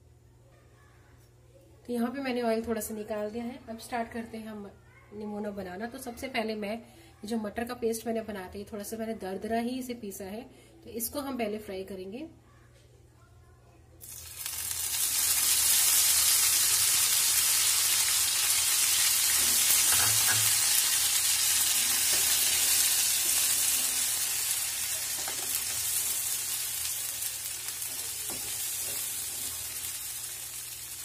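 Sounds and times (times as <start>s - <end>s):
paste sizzling in oil: 14.0s - 31.0s.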